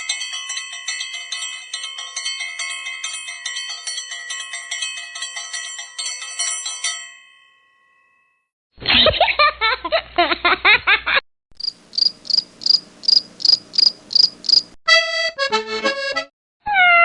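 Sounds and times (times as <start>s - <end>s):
cricket chirping: 11.6s - 14.8s
squeaky chattering calls: 12.0s - 14.7s.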